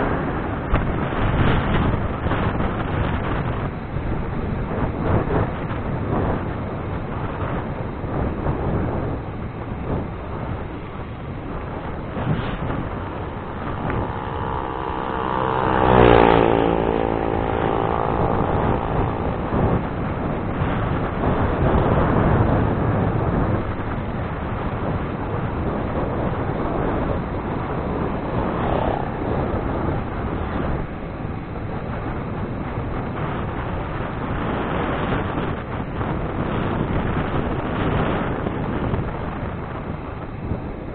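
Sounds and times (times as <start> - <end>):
wind over microphone: 0.0 - 40.9
vehicle engine passing by: 11.6 - 31.4.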